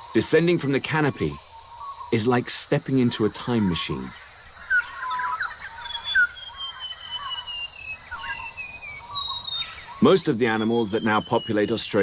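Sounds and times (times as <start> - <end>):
high-pitched insect drone: 0.0 - 12.0
birds chirping and whistling: 1.0 - 2.3, 3.4 - 12.0
long falling bird whistle: 4.7 - 11.8.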